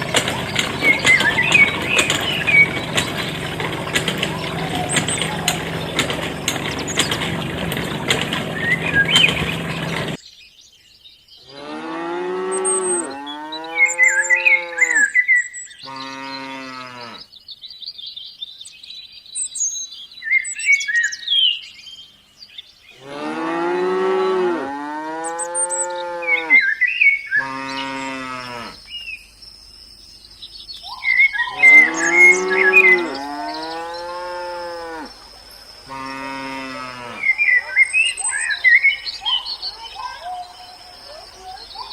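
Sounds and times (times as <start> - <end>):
cows mooing: 0.0 - 10.2, 11.5 - 15.1, 23.0 - 26.7, 27.4 - 28.8, 31.3 - 35.2, 35.9 - 38.6
mechanical rattling: 0.0 - 10.2
birds chirping: 0.0 - 41.9.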